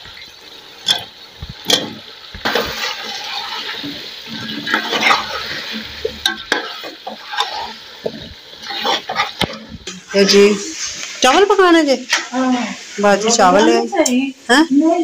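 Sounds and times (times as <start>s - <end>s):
potatoes sizzling in oil: 0.0s - 15.0s
metal ladle scraping a pot: 2.6s - 10.9s.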